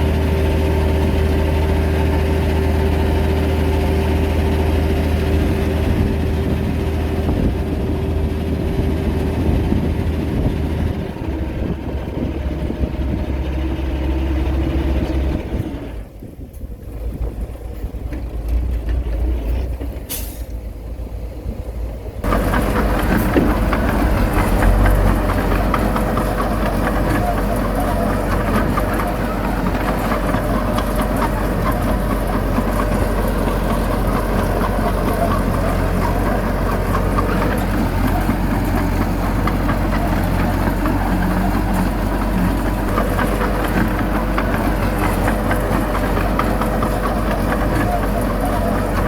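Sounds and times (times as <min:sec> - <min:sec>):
heavy diesel engines running: 0:00.0 - 0:49.0
brief hiss: 0:20.1 - 0:20.6.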